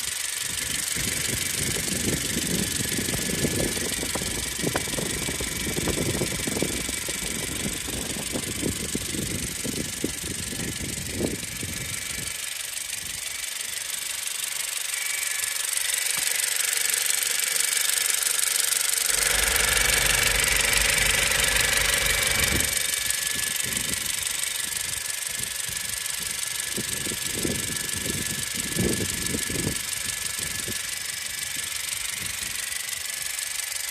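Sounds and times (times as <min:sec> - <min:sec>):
engine knocking and rattling: 0:00.0 - 0:33.9
deep hum: 0:19.1 - 0:29.7.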